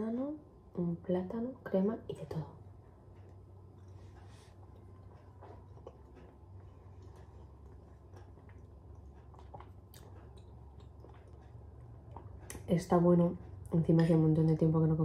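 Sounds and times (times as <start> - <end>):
steady low hum: 0.0 - 15.0
person chewing: 3.2 - 12.7.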